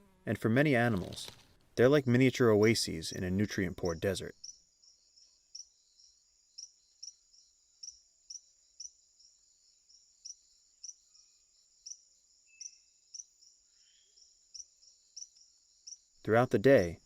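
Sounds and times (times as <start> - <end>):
insects droning: 1.9 - 17.0
sharp insect chirp: 4.3 - 16.2.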